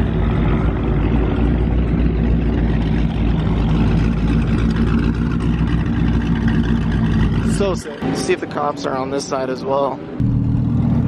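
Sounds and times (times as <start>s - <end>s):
car engine running steadily: 0.0s - 11.0s.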